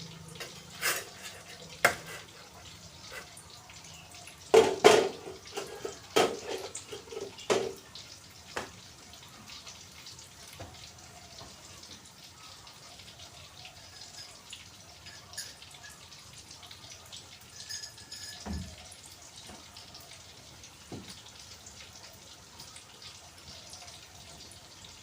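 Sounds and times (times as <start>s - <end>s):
metal pots clanking: 0.0s - 8.0s, 13.9s - 16.1s, 17.4s - 19.7s
water trickling and dripping: 0.0s - 25.0s.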